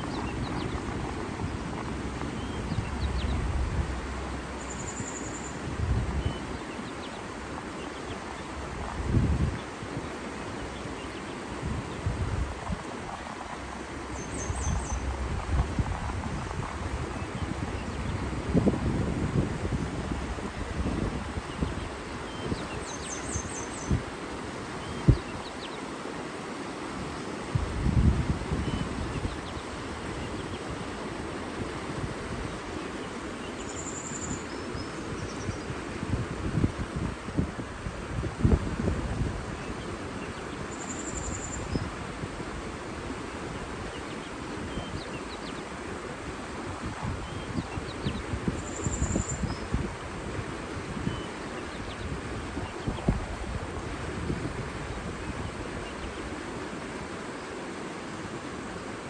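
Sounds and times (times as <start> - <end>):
wind buffeting microphone: 0.0 - 25.6, 26.2 - 57.4
water rushing: 0.0 - 59.0.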